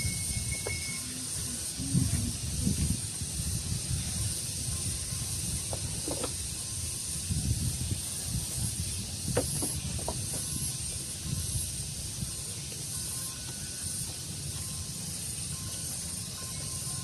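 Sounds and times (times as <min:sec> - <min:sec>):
faint thin whistles: 0:00.0 - 0:01.3
high-pitched hiss: 0:00.0 - 0:17.0
breeze rumbling on microphone: 0:01.3 - 0:12.4.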